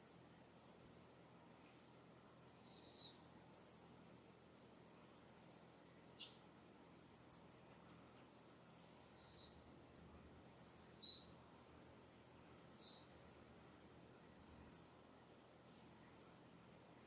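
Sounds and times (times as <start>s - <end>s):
distant songbird chirping: 0.0s - 0.4s, 1.6s - 6.5s, 7.2s - 11.5s, 12.2s - 13.5s, 14.2s - 16.2s.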